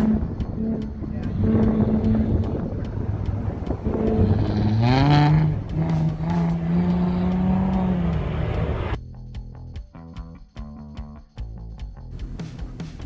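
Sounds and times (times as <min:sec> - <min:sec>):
car engine revving: 0:00.0 - 0:09.0
music: 0:00.0 - 0:13.0.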